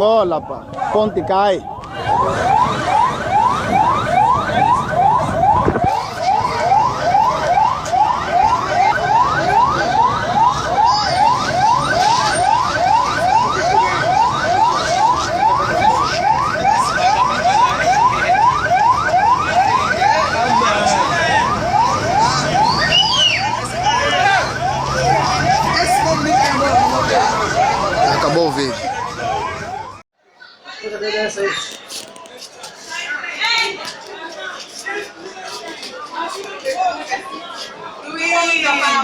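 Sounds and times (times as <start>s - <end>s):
emergency vehicle siren sweeping: 0.0s - 30.1s.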